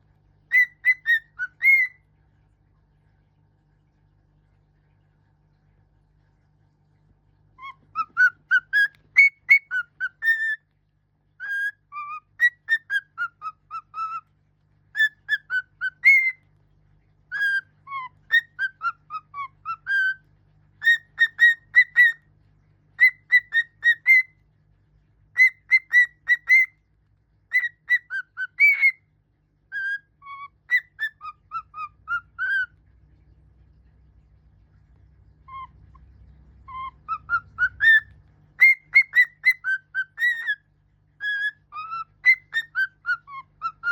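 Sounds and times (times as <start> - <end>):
bird whistling a melody: 0.5 - 2.0, 7.6 - 10.7, 11.4 - 14.2, 14.9 - 16.4, 17.3 - 20.2, 20.8 - 22.2, 23.0 - 24.4, 25.3 - 26.8, 27.5 - 29.0, 29.7 - 32.8, 36.6 - 40.6, 41.2 - 43.9.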